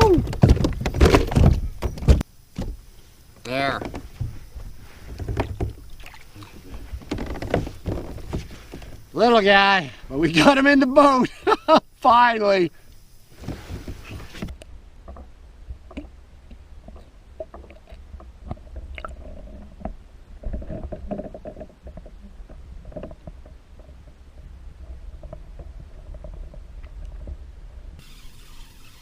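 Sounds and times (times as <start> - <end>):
light knocks and clicks in kayak: 3.4 - 9.1, 12.9 - 27.4
brief hiss: 28.0 - 29.0.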